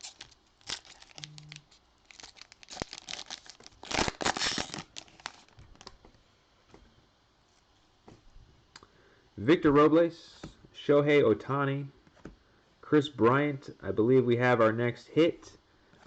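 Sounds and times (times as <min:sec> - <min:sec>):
card pack wrapper tearing and crinkling: 0:00.0 - 0:05.9.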